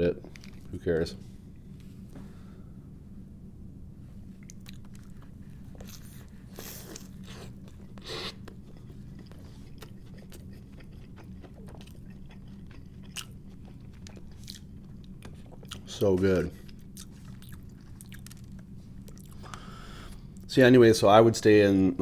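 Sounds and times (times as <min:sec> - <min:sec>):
steady low hum: 0:00.0 - 0:22.0
wet chewing clicks: 0:04.4 - 0:15.9, 0:16.7 - 0:19.6.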